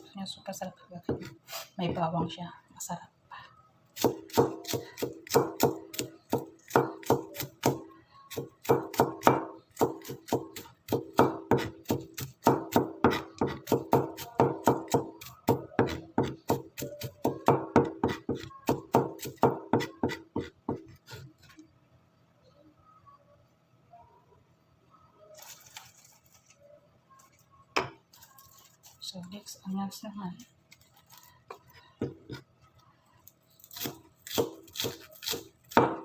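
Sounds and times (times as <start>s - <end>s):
knife chopping on cutting board: 8.6s - 20.9s, 33.8s - 36.0s.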